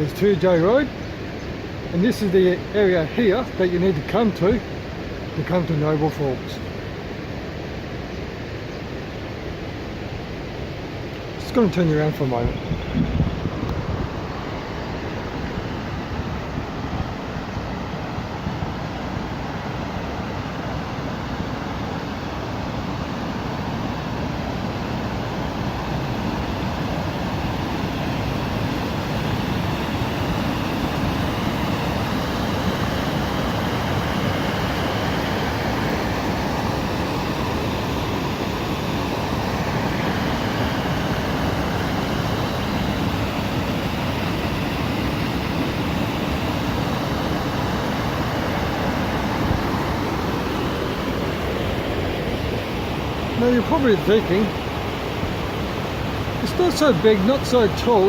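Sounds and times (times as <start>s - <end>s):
small waterfall rushing: 13.5s - 58.0s.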